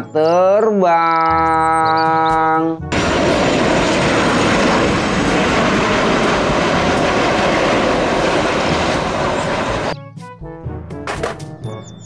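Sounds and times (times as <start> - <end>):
jet engine roar: 2.9 - 10.0.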